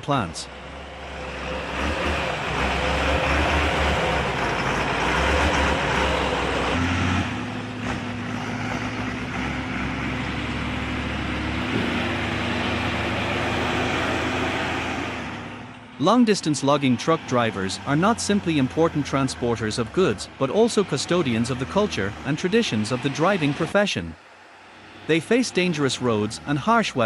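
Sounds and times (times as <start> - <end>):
road noise: 0.0 - 27.0
truck engine hum: 0.0 - 27.0.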